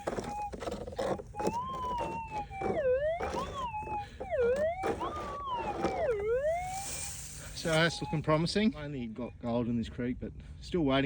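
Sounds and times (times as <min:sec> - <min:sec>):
metal detector wavering tone: 0:00.0 - 0:00.6, 0:01.3 - 0:08.7.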